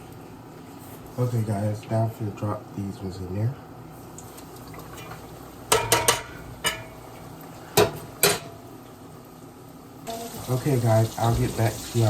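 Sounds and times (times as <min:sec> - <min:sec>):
cookware clinking and clattering: 0:05.7 - 0:07.0.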